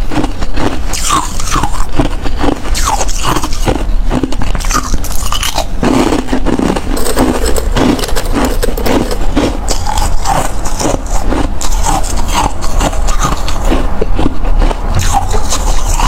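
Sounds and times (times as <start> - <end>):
ice chewing crunching: 0.0 - 16.0.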